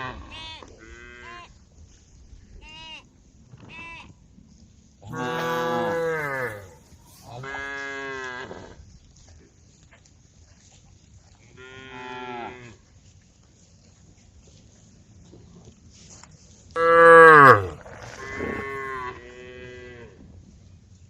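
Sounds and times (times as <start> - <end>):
cows mooing: 5.1 - 6.8, 16.8 - 19.8.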